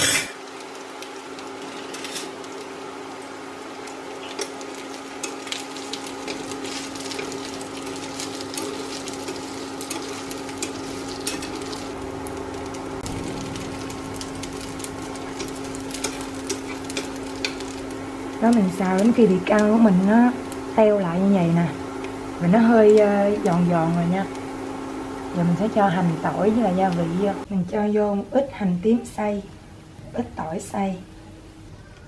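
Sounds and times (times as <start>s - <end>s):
food sizzling in hot oil: 0.0s - 27.5s
steady low hum: 0.0s - 32.0s
chopsticks stirring: 4.3s - 12.0s, 13.5s - 18.9s.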